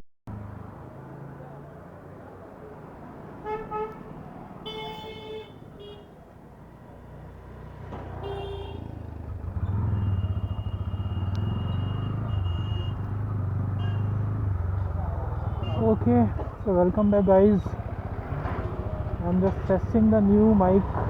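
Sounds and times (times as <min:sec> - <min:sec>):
traffic horns honking: 0:03.4 - 0:06.2, 0:08.0 - 0:20.0
motorcycle engine: 0:07.1 - 0:21.0.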